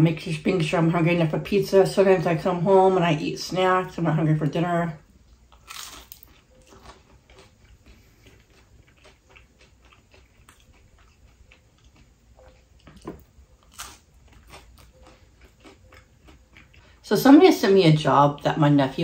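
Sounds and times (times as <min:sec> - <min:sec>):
person chewing pizza: 0:05.5 - 0:17.0.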